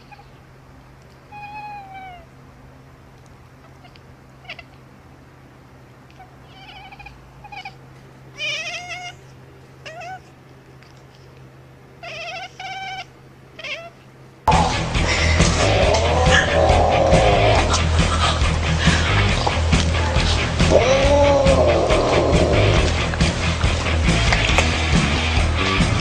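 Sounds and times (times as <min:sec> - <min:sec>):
cat meowing: 0:01.3 - 0:02.3, 0:03.6 - 0:04.8, 0:06.1 - 0:10.4, 0:12.0 - 0:14.1, 0:15.6 - 0:17.8, 0:20.6 - 0:23.0
loud music: 0:14.5 - 0:26.0.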